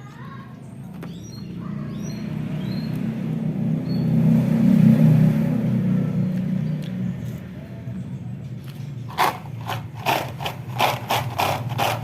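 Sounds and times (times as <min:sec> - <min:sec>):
bird chirps: 0:00.9 - 0:03.0
vehicle engine passing by: 0:01.4 - 0:12.0.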